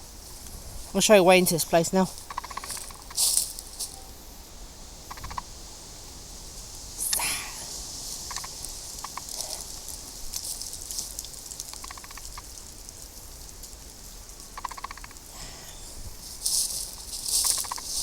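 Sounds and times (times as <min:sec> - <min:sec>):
steady high hiss: 0:00.0 - 0:18.0
footsteps through undergrowth: 0:01.7 - 0:04.0, 0:08.0 - 0:11.7, 0:16.0 - 0:18.0
crackles: 0:01.8 - 0:04.0, 0:06.5 - 0:15.3, 0:16.1 - 0:18.0
rapid rattle of clicks: 0:11.6 - 0:12.9, 0:14.5 - 0:15.2.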